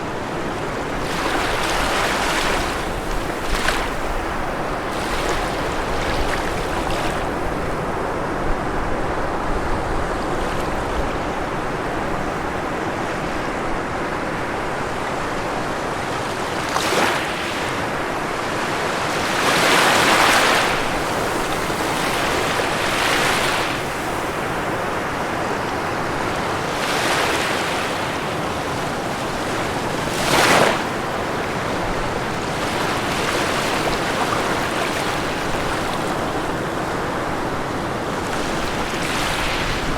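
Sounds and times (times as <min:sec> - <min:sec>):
ocean surf washing on shore: 0:00.0 - 0:39.9.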